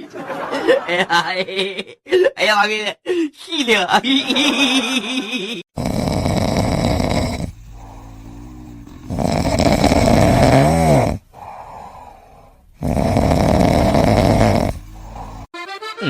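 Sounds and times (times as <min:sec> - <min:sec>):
pet snoring loudly: 0:05.7 - 0:15.5
quiet breathing: 0:05.8 - 0:15.5.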